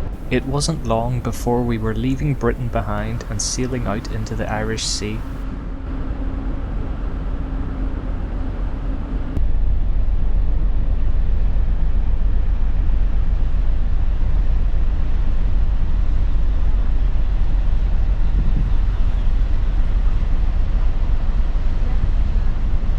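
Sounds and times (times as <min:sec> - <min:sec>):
ship engine drone: 0:00.0 - 0:05.4
rumbling wind noise on microphone: 0:09.4 - 0:22.9.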